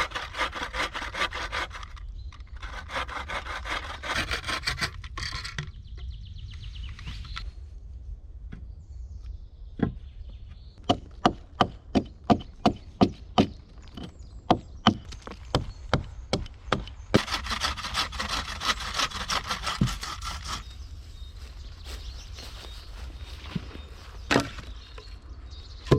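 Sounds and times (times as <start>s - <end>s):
rapid scraping on wood: 0.0s - 5.6s, 14.9s - 20.9s
axe chopping wood: 10.8s - 16.9s.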